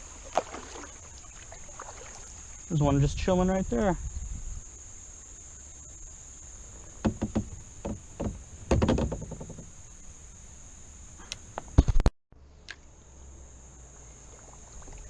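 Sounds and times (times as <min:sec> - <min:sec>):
high-pitched insect drone: 0:00.0 - 0:11.4
sharp knocks and clatters: 0:07.0 - 0:09.7.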